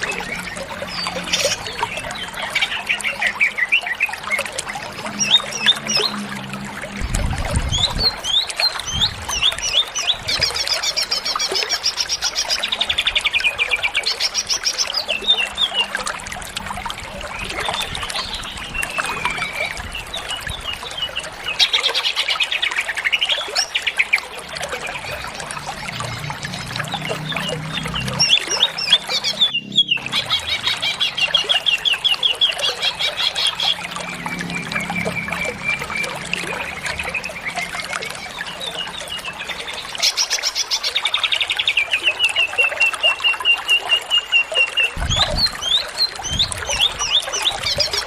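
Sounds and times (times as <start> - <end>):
bird singing: 0.0 - 6.5, 17.4 - 48.0.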